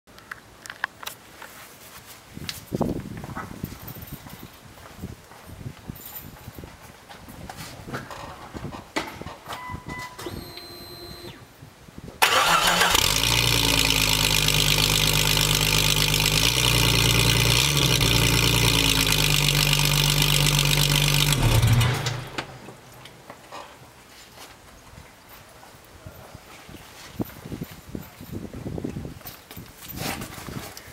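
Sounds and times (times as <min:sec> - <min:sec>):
car engine running loud: 0:12.9 - 0:22.7.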